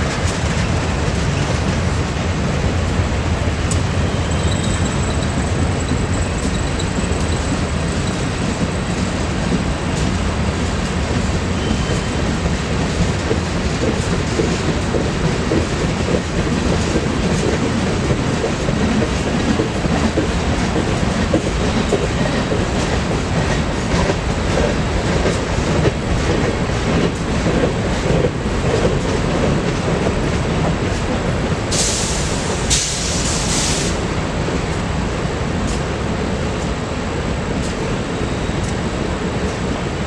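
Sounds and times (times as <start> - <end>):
freight train wheels clicking: 0.0 - 35.0.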